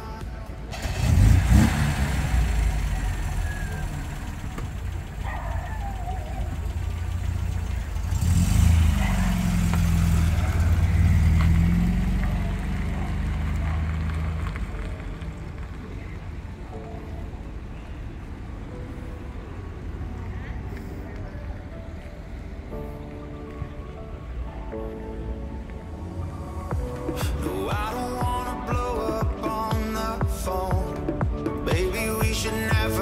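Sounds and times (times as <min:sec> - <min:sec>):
car engines running and revving: 0:00.3 - 0:22.7.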